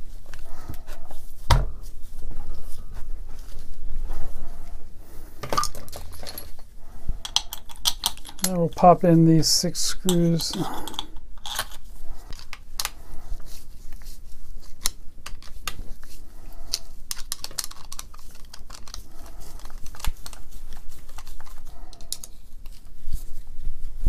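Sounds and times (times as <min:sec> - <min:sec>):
metal screws clicking on casing: 0:07.2 - 0:08.8, 0:10.1 - 0:13.0, 0:16.7 - 0:20.4.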